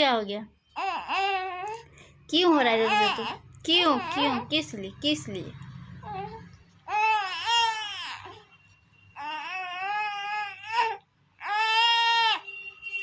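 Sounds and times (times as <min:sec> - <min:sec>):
small child crying: 0:06.9 - 0:08.4, 0:09.2 - 0:12.4.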